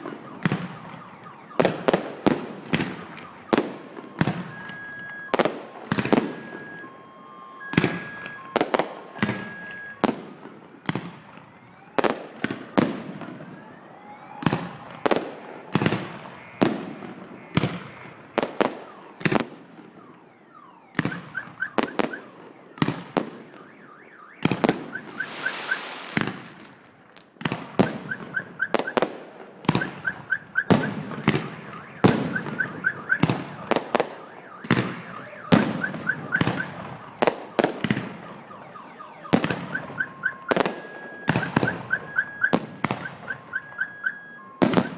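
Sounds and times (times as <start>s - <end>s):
car alarm chirps: 0.0s - 26.7s, 27.8s - 44.9s
fireworks bangs: 0.0s - 44.9s
firework hiss: 25.1s - 26.8s.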